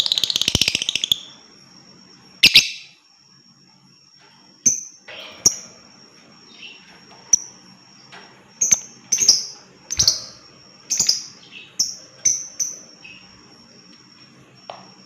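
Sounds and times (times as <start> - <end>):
lovebird shrill chirps: 0.0 - 1.4, 2.4 - 3.0, 10.9 - 13.3.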